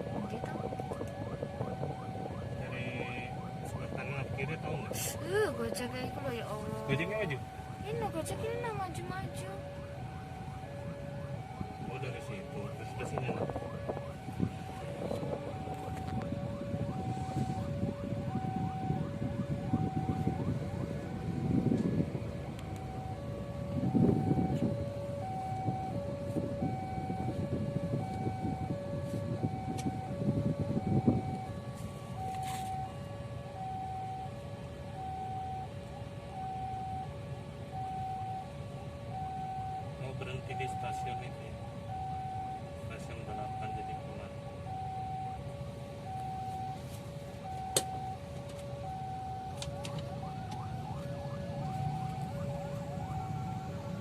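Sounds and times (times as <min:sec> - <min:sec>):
idling motorcycles and traffic rumble: 0:00.0 - 0:54.0
two-tone crossing alarm: 0:00.0 - 0:54.0.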